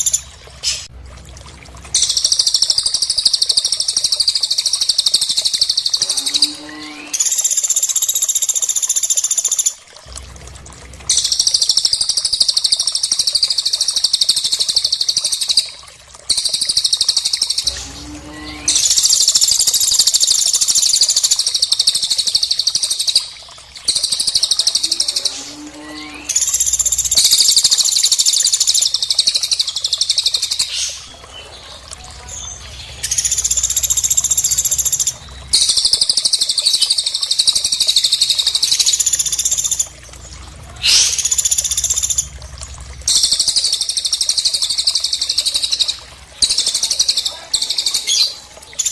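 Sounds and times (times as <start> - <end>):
bird calls high rapid trilling: 2.0 - 9.8, 11.1 - 31.2, 32.3 - 40.0, 40.8 - 42.3, 43.1 - 48.9.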